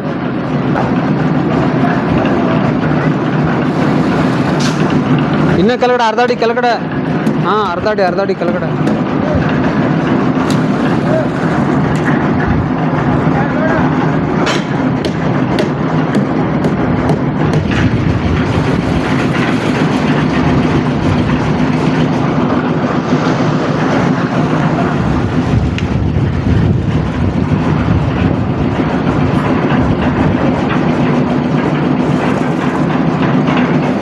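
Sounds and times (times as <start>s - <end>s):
construction machinery engine running: 0.0s - 34.0s.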